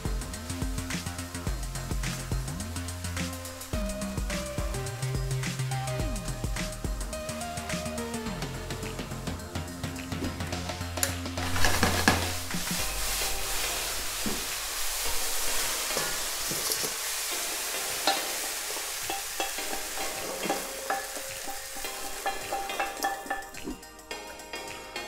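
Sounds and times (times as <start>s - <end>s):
vegetables sizzling in frying pan: 11.4s - 23.8s.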